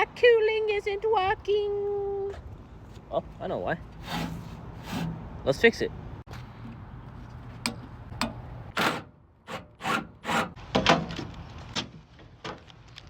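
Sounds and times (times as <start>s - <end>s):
tools scraping and knocking: 4.0s - 5.3s.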